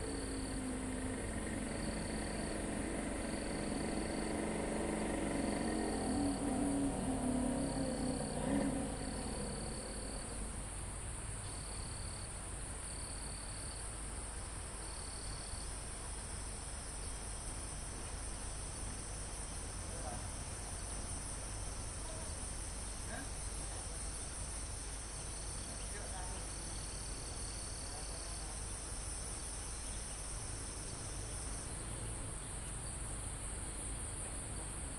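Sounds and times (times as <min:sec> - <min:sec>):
low rumble: 0:00.0 - 0:11.3
insect short trills: 0:00.0 - 0:12.3
crickets and insects trilling: 0:00.0 - 0:34.9.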